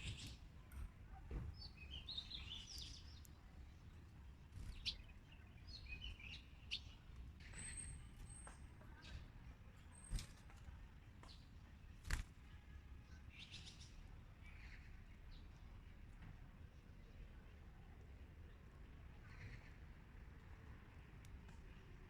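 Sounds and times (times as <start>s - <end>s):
small birds twittering: 0.0s - 10.6s, 13.2s - 15.8s.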